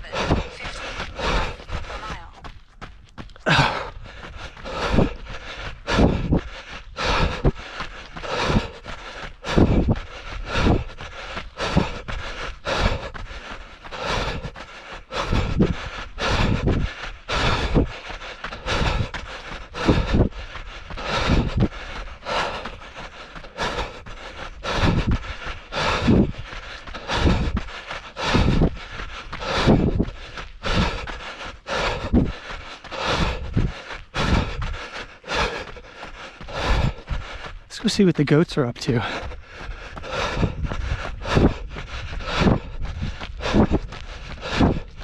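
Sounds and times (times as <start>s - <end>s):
runner breathing: 0.0s - 45.0s
footfalls on trail: 0.1s - 10.0s
wind rumbling on microphone: 3.4s - 7.6s, 8.2s - 13.4s, 14.0s - 22.7s, 24.6s - 35.7s, 39.1s - 45.0s.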